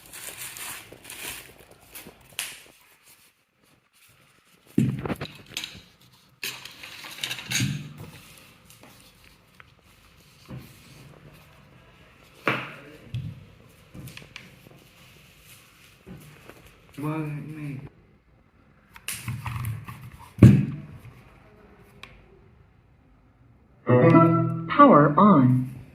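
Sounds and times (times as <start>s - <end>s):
packaging rustling: 0.0s - 12.3s.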